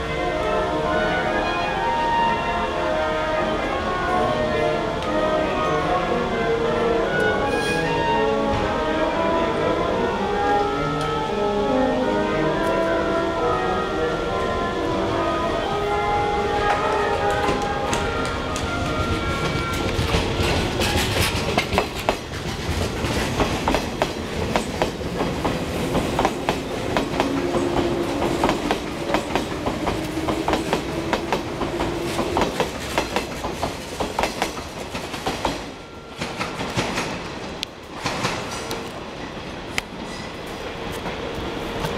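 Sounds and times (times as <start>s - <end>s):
train rumble: 0.0s - 41.9s
train wheels clicking over rail joints: 16.8s - 41.9s.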